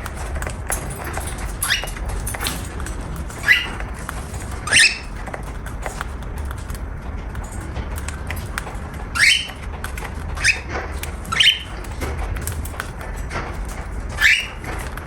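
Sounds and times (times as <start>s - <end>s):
cockatiel rising calls: 4.6s - 5.2s, 9.2s - 9.6s, 11.3s - 11.7s, 14.2s - 14.6s.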